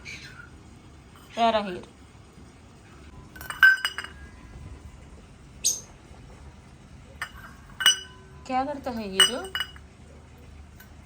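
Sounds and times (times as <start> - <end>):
bowl clinking and rattling: 3.2 - 4.4, 7.2 - 9.9
parrot squeak: 5.6 - 5.9.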